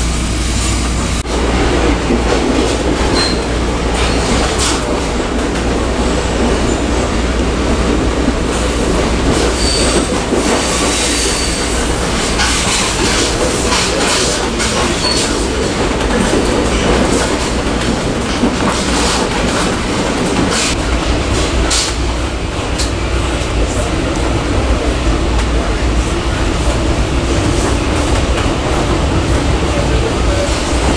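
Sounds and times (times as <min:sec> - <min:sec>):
train rumbling on rails: 0:00.0 - 0:30.9
high wheel squeals: 0:09.4 - 0:10.1, 0:10.9 - 0:11.8.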